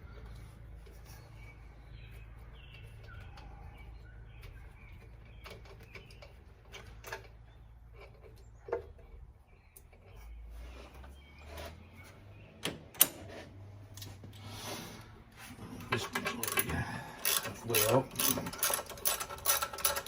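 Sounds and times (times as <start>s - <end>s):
faint bird chirps: 0.0s - 6.8s
hand tools and bolts clinking: 15.4s - 20.0s.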